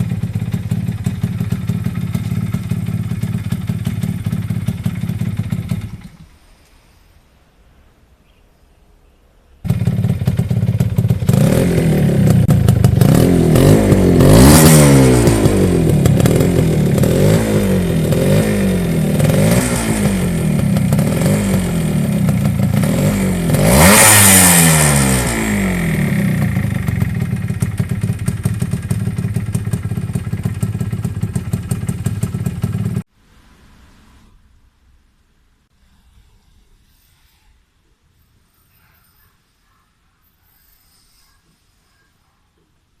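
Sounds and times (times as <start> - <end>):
two-stroke motorcycle engine revving: 0.0 - 6.3, 9.6 - 33.1.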